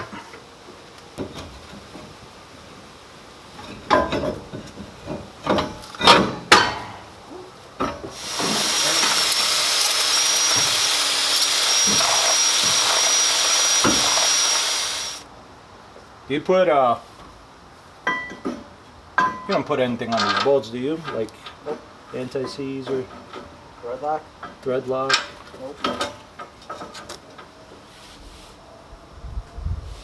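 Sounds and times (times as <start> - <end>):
loud steady hiss: 8.1 - 15.2.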